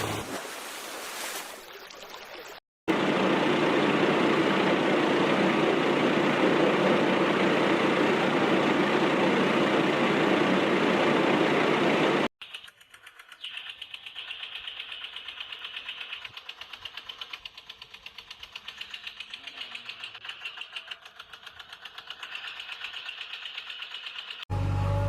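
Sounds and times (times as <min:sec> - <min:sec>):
toy motor whirring and clicking: 0:12.4 - 0:24.4.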